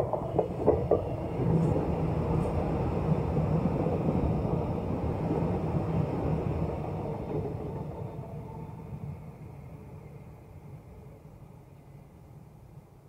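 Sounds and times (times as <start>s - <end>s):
train wheel clacks: 0.0s - 1.8s
train wheels rumbling on rails: 0.0s - 10.1s.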